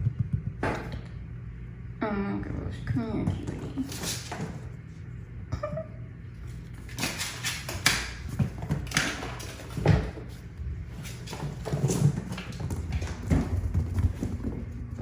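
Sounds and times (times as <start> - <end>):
kittens' paws pattering: 6.4 - 15.0.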